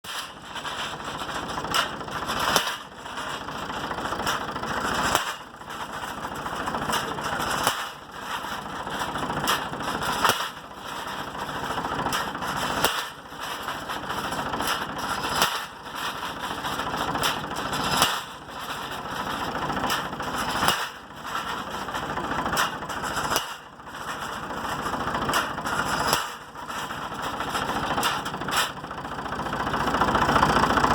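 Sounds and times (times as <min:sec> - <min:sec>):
machinery running steadily: 0:00.0 - 0:30.9
pile driver hammer striking: 0:01.5 - 0:03.4, 0:04.4 - 0:05.5, 0:06.9 - 0:08.0, 0:09.5 - 0:10.6, 0:12.1 - 0:13.2, 0:14.6 - 0:15.8, 0:17.2 - 0:18.4, 0:19.8 - 0:21.1, 0:22.6 - 0:23.7, 0:25.3 - 0:26.7.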